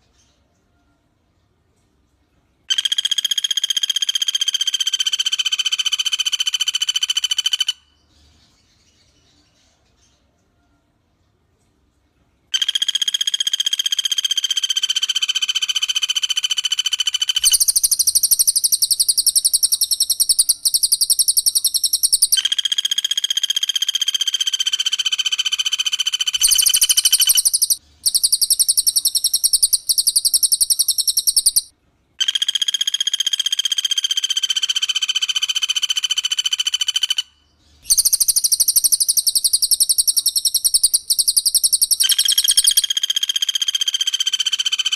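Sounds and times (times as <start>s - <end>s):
bird fast pulsed trill: 12.6s - 37.3s, 37.9s - 44.9s
bird shrill high trill: 14.5s - 32.6s, 37.9s - 44.9s.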